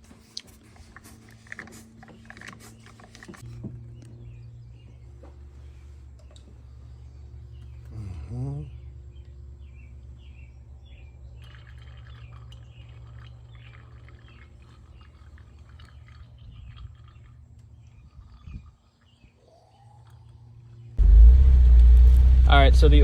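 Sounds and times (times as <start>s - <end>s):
car engine running at low speed: 21.0s - 23.0s.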